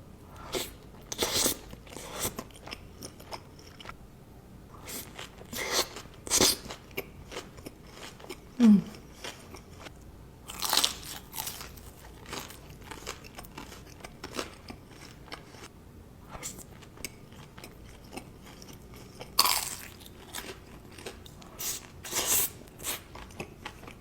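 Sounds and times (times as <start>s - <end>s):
chewing: 10.5s - 15.7s, 16.4s - 24.0s.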